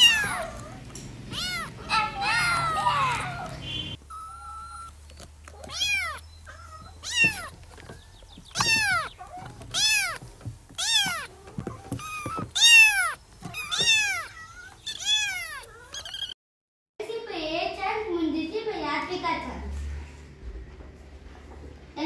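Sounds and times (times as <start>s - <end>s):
kitten meowing: 0.0s - 16.4s.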